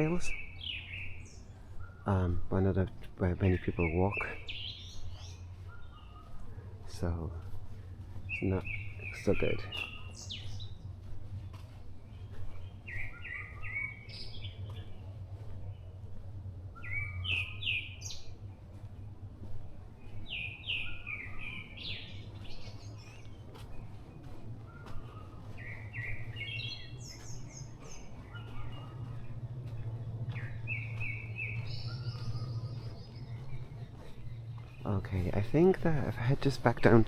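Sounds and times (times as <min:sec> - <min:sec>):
distant traffic and trains hum: 0:00.0 - 0:37.0
songbird singing: 0:00.0 - 0:37.0.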